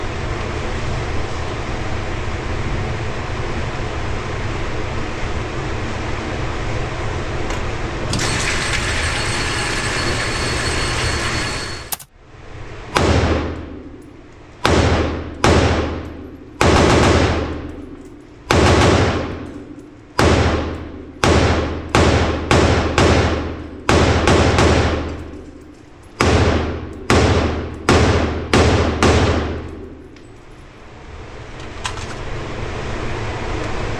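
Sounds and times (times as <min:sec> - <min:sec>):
echoing gunshots: 0:13.0 - 0:13.7, 0:14.6 - 0:17.8, 0:18.5 - 0:25.4, 0:26.2 - 0:29.9.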